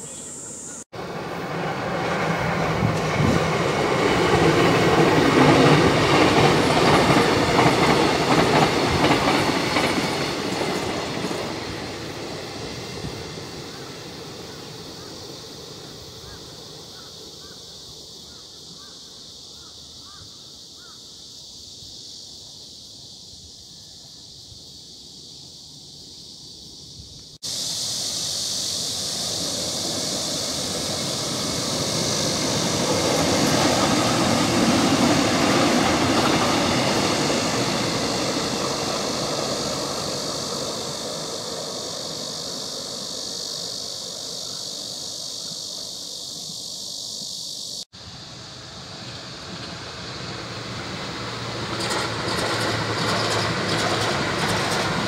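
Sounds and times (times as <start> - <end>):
train passing: 0.0 - 19.8, 21.4 - 55.0
electric train rumble: 0.0 - 20.2, 22.8 - 55.0.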